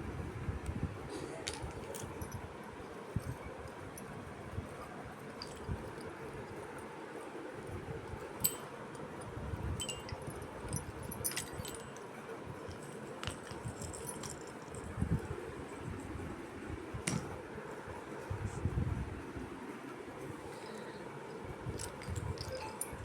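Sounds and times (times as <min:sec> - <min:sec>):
light metallic clinks: 0:04.7 - 0:06.9, 0:08.2 - 0:15.3, 0:20.5 - 0:23.0.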